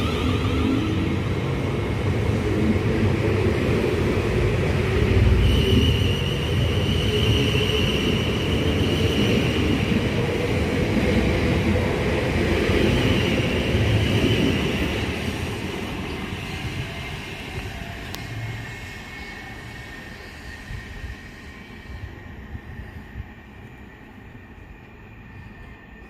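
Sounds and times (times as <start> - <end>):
electric train rumbling: 0.0 - 26.0.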